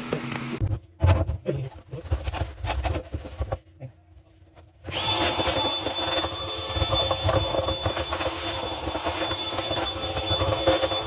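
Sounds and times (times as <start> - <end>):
vacuum cleaner whining: 0.0 - 0.6, 4.8 - 11.0.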